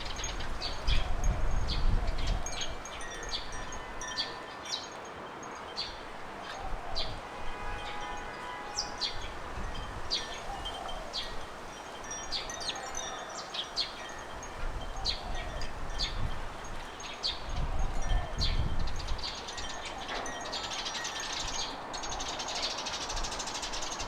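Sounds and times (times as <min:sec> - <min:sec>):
birds chirping: 0:07.8 - 0:24.0.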